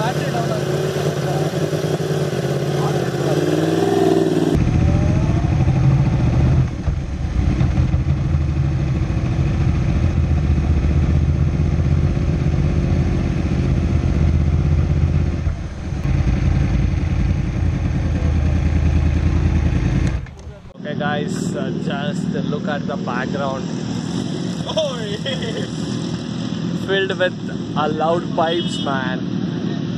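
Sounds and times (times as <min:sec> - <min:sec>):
motorcycle engine idling: 0:04.7 - 0:20.8.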